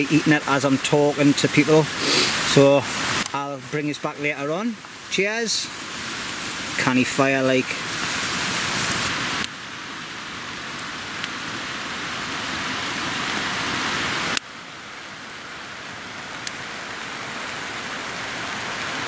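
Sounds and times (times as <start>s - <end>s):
heavy rain hissing: 0.0s - 19.0s.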